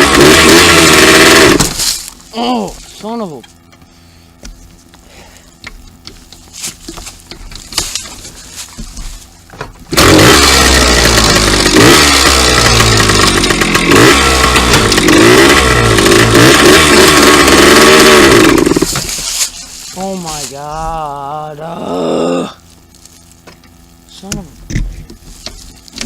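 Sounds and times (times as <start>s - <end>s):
dirt bike engine revving: 0.0s - 2.6s, 9.9s - 19.2s.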